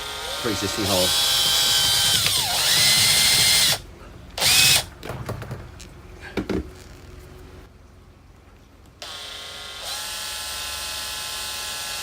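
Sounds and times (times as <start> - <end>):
power drill driving a screw: 0.0 - 3.8, 4.4 - 4.9, 9.0 - 12.0.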